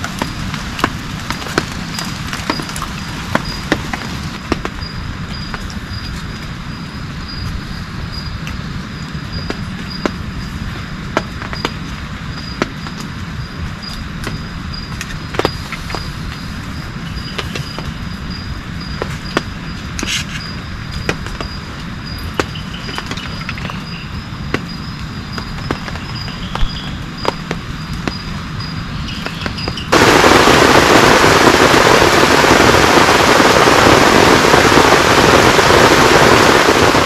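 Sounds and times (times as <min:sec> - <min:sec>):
heavy raindrops ticking: 0:00.0 - 0:06.6, 0:21.0 - 0:37.0
high pulsing insect call: 0:00.0 - 0:37.0
steady rain: 0:00.0 - 0:37.0.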